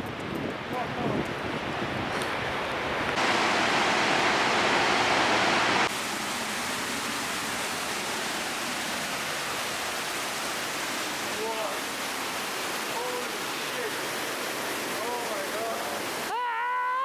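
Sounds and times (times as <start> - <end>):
waterfall rushing: 0.8 - 16.4.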